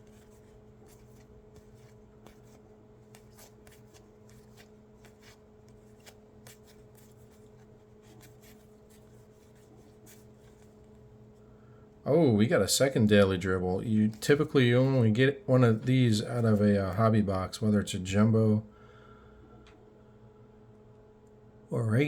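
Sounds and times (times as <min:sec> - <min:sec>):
cards flicking and sliding: 0:00.0 - 0:10.8
faint steady hum: 0:00.0 - 0:22.0.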